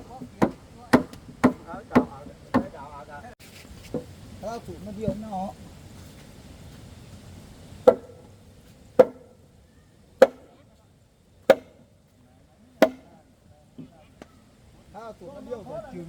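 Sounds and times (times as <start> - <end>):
chopping blows into wood: 7.8 - 8.2, 10.2 - 10.5, 11.5 - 11.8, 12.8 - 13.1.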